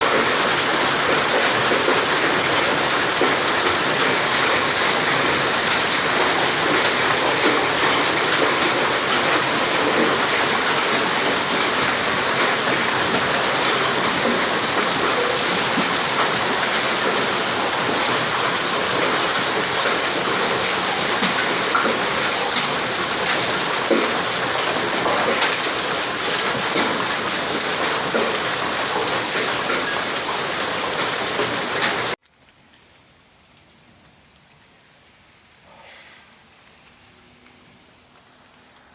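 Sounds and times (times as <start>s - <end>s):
hail hits: 0.0s - 35.6s
heavy rain downpour: 0.0s - 38.9s.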